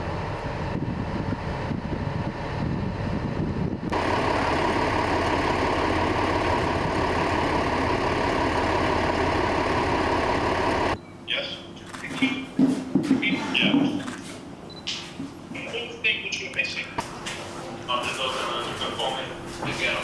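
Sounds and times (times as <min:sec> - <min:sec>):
bulldozer diesel engine rumbling: 0:00.0 - 0:11.0
loud mechanical din: 0:03.8 - 0:11.0.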